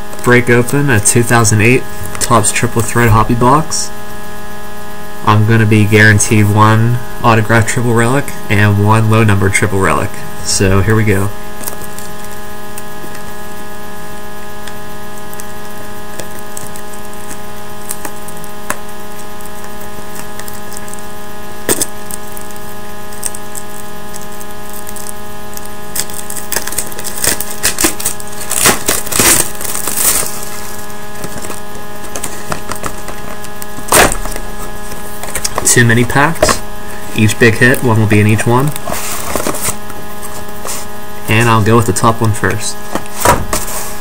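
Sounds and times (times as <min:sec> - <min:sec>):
electrical hum: 0:00.0 - 0:44.0
packaging crackling: 0:11.4 - 0:41.3.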